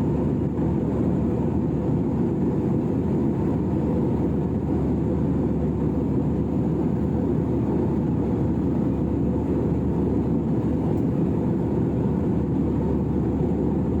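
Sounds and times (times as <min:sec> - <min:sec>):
jet airliner cabin drone: 0:00.0 - 0:14.0.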